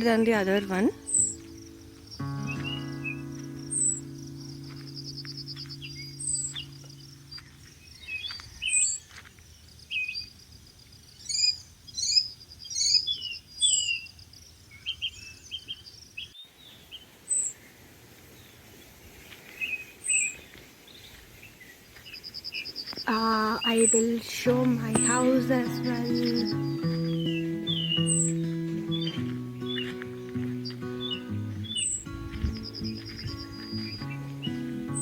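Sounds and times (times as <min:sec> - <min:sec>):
birds chirping and calling: 0:00.0 - 0:09.2, 0:11.2 - 0:14.1, 0:19.4 - 0:35.0.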